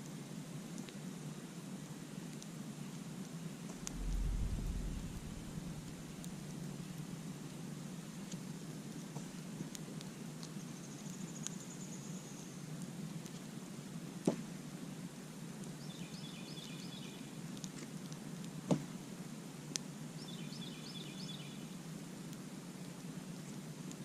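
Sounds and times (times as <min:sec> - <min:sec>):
campfire crackling: 0:01.8 - 0:11.2.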